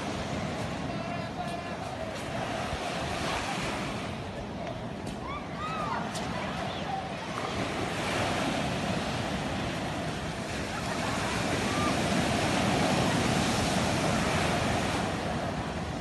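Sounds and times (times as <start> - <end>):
waves washing ashore: 0.0 - 16.0.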